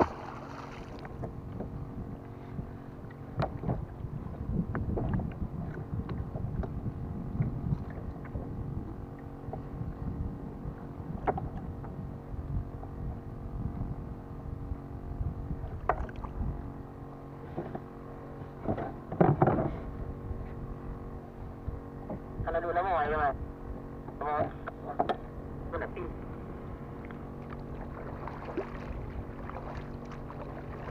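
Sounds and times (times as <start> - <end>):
water lapping against kayak hull: 0.0 - 10.2, 26.1 - 30.9.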